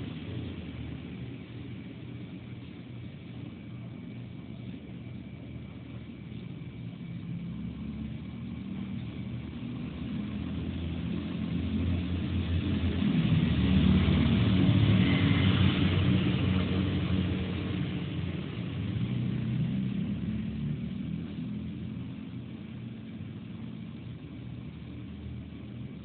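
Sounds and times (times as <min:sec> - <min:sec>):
vehicle engine hum passing: 0:00.0 - 0:26.0.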